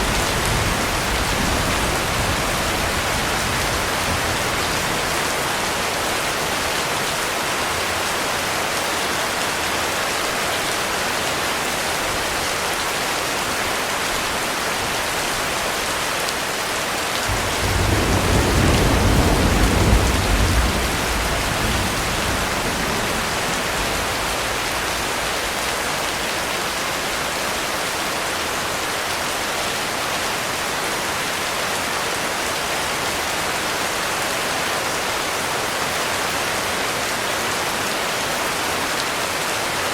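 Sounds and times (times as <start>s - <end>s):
thunder rumble: 0.0s - 5.4s, 17.3s - 26.7s
heavy rain falling: 0.0s - 39.9s.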